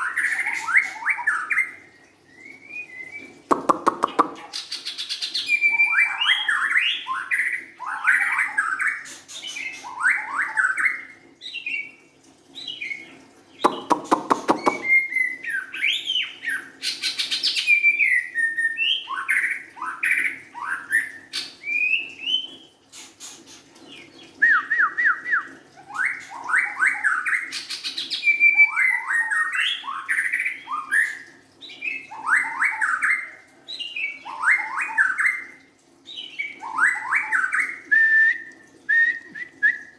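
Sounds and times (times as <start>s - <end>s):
bird singing whistled phrases: 13.6s - 15.9s, 24.4s - 27.2s, 36.6s - 39.9s.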